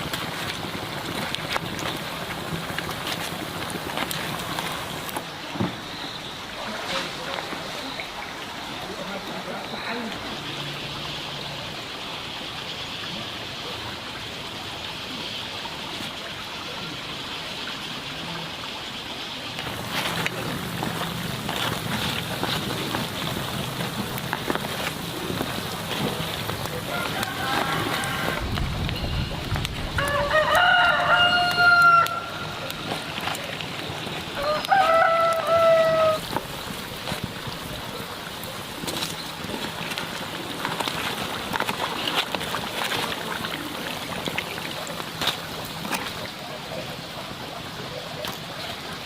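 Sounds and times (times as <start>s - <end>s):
hot oil sizzling: 0.0s - 5.2s, 19.6s - 41.7s
oil crackling and popping: 0.0s - 5.3s, 19.6s - 46.4s
rooster crowing: 26.8s - 28.6s, 29.9s - 32.6s, 34.4s - 36.3s.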